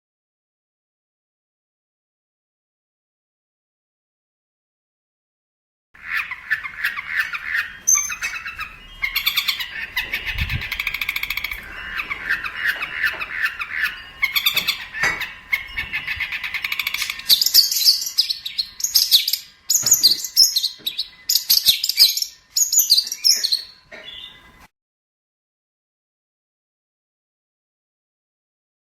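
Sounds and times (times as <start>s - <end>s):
shrike chattering song: 6.0s - 24.7s.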